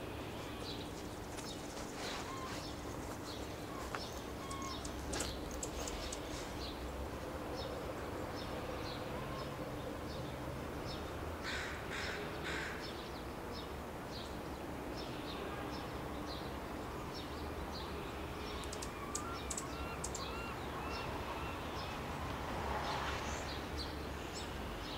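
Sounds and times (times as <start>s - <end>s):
harsh bird calls: 0.0s - 7.0s, 18.5s - 22.0s
birds chipping: 0.0s - 22.2s.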